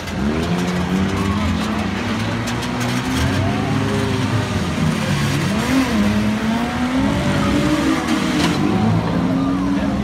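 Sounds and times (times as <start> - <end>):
car engines revving: 0.0 - 10.0.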